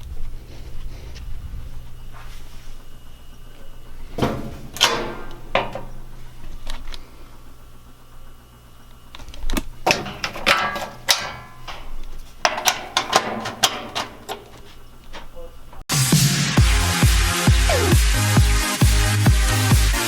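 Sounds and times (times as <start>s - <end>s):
sharp knocks and clatters: 4.2s - 6.0s, 9.8s - 14.6s.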